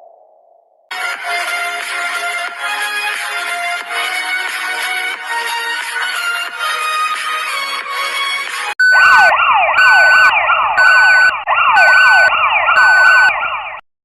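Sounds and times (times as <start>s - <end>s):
electronic siren yelp: 8.8s - 13.8s.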